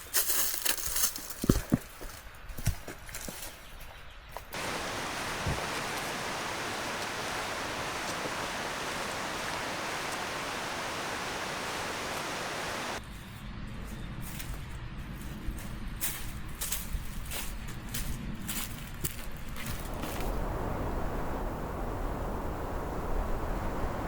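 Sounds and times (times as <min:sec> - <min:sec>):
steady rushing noise: 0:04.6 - 0:13.0, 0:19.8 - 0:24.0.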